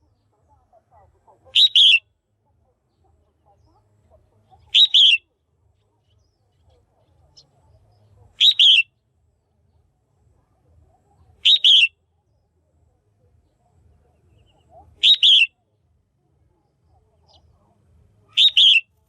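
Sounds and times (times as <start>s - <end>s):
bird chirping: 1.5s - 2.0s, 2.9s - 5.2s, 5.8s - 8.9s, 11.2s - 12.6s, 13.4s - 15.6s, 16.5s - 19.0s.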